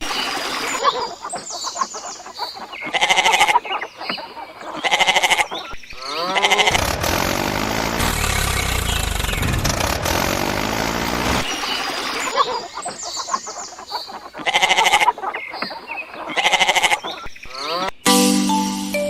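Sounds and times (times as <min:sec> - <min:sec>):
quavering animal calls: 0:00.0 - 0:17.9
engine rumble: 0:06.7 - 0:11.8.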